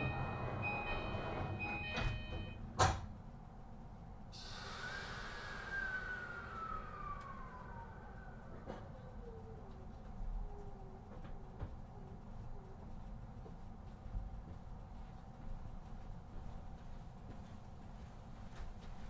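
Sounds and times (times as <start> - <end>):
train door chime: 0.0 - 2.8
train traction whine: 0.0 - 2.8, 4.3 - 10.2
train doors slamming shut: 0.0 - 3.1
hiss of air: 4.4 - 7.8.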